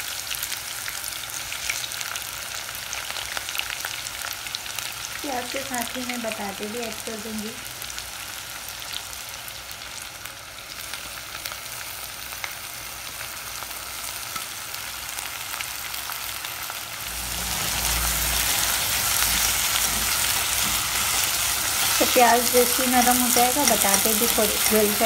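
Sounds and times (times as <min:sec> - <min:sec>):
onions sizzling in hot oil: 0:00.0 - 0:25.0
spatula stirring potatoes: 0:18.9 - 0:25.0.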